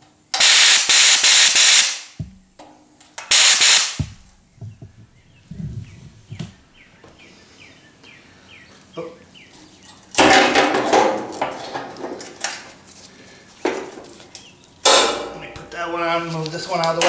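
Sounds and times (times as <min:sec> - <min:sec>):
sandblaster hissing: 0:00.4 - 0:02.2, 0:03.3 - 0:04.3
light knocks: 0:04.0 - 0:07.2.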